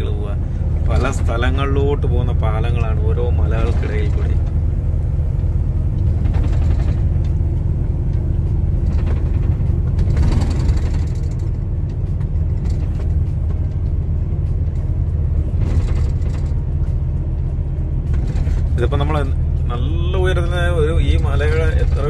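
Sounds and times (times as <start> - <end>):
truck engine rumble: 0.0 - 22.0.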